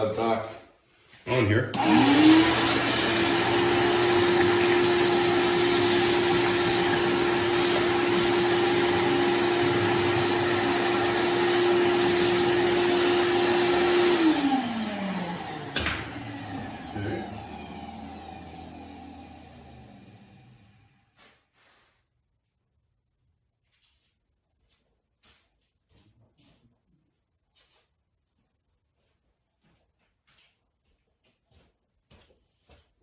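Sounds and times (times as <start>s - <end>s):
vacuum cleaner motor running: 1.8s - 21.0s.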